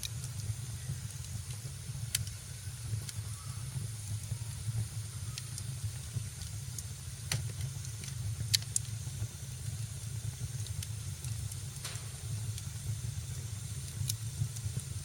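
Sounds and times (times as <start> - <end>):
fire pops and snaps: 0.0 - 15.0
fire rumbling and hissing: 0.0 - 15.0.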